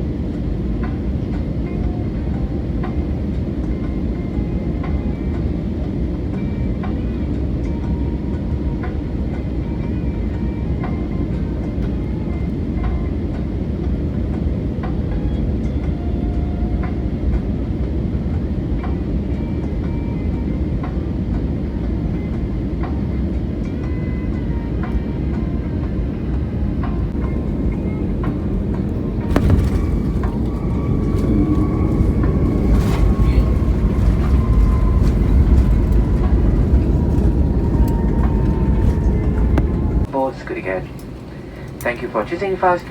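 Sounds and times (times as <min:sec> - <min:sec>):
aircraft rumbling on runway: 0:00.0 - 0:42.9
faint steady whine: 0:00.0 - 0:42.9
wheels rumbling on runway: 0:26.2 - 0:42.2.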